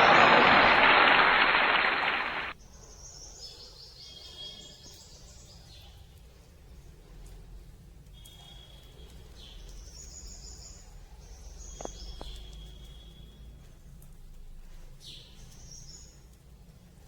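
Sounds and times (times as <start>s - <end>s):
loud even noise: 0.0s - 2.6s.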